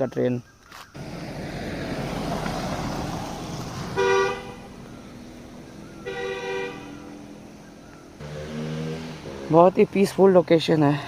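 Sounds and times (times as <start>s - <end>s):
passing vehicle rushing: 1.0s - 11.0s
two-tone horn toots: 4.0s - 4.7s, 6.0s - 7.1s.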